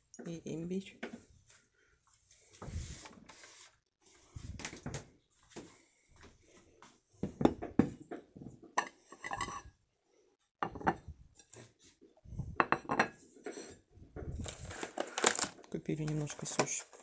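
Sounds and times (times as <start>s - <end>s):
dishes and cutlery clinking: 8.7s - 9.7s, 10.6s - 11.6s, 12.6s - 13.8s.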